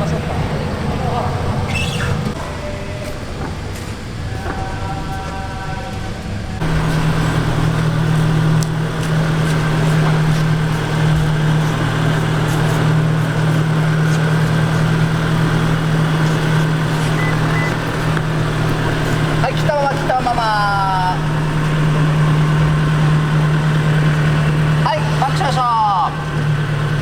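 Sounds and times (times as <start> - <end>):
car exhaust idling: 6.6 - 27.0.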